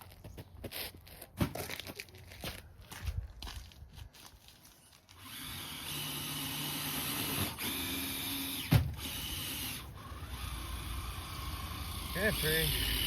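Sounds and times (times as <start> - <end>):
toy truck electric motor whining: 4.9 - 13.0.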